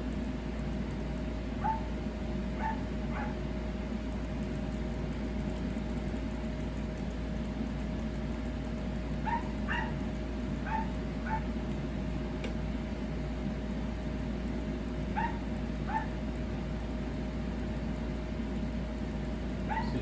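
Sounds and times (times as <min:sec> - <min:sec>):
electrical hum with thin tone: 0:00.0 - 0:20.0
dog yipping: 0:01.6 - 0:01.9, 0:02.6 - 0:03.4, 0:09.2 - 0:10.0, 0:10.6 - 0:11.5, 0:15.1 - 0:16.2, 0:19.7 - 0:20.0.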